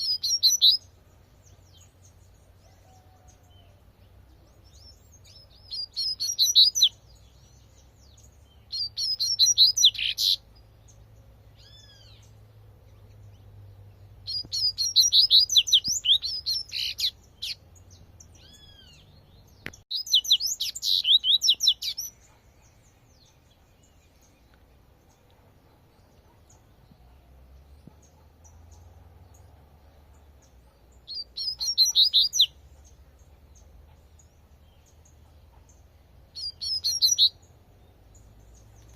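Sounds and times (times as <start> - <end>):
bird twittering song: 0.0 - 38.9
single whistled bird notes: 14.3 - 17.6, 36.4 - 37.4.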